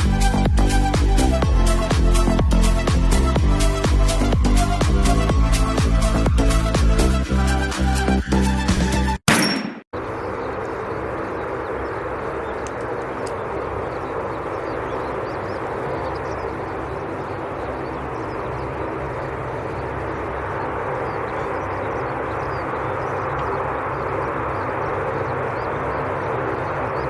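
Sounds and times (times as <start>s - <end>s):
aircraft engines droning: 10.0s - 27.0s.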